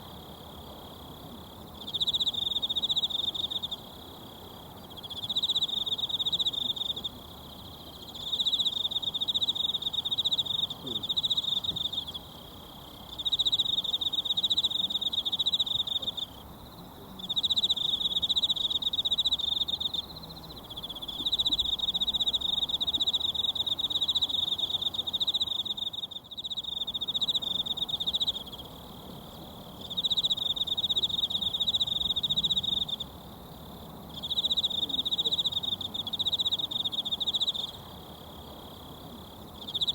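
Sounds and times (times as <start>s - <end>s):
insect trilling: 13.0s - 16.4s, 29.7s - 33.1s, 34.1s - 38.4s, 39.0s - 39.9s.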